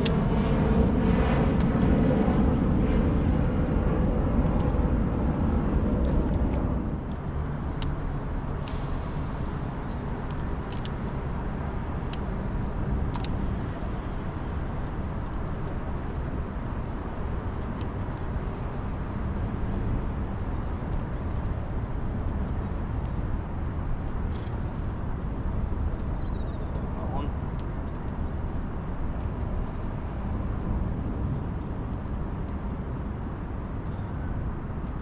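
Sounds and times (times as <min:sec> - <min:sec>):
engine drone: 0:00.0 - 0:16.4
low background rumble: 0:00.0 - 0:35.0
short hiss: 0:08.6 - 0:10.3.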